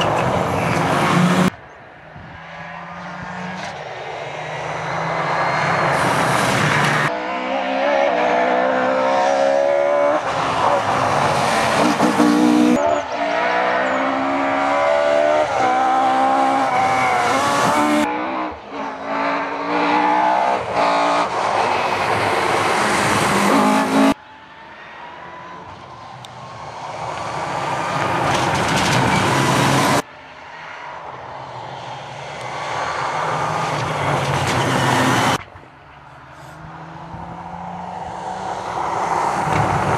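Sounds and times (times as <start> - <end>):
rally car engines revving: 0.0 - 1.6, 2.2 - 24.2, 31.8 - 35.5
car approaching: 0.0 - 39.9.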